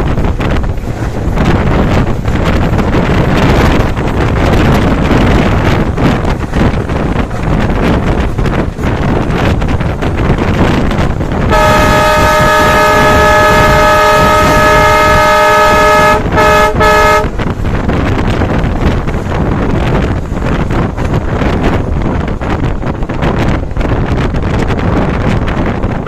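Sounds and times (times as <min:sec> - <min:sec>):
rushing wind: 0:00.0 - 0:26.0
train running at speed: 0:00.0 - 0:26.0
locomotive air horn blasts: 0:11.5 - 0:17.4.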